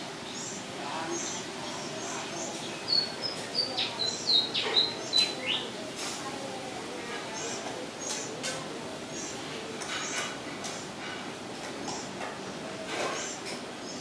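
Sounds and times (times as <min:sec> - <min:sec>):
steady background noise: 0:00.0 - 0:14.0
small birds chirping: 0:00.2 - 0:05.9, 0:07.0 - 0:08.4, 0:09.0 - 0:10.3.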